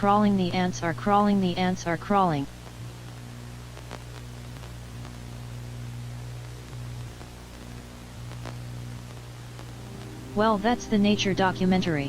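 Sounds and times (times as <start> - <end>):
low electrical hum: 0.0 - 12.0
static hiss: 0.0 - 12.0
faint tick: 6.4 - 9.7.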